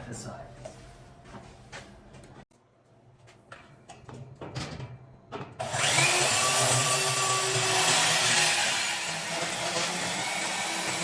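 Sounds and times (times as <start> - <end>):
band saw cutting steel tubing: 5.6 - 11.0.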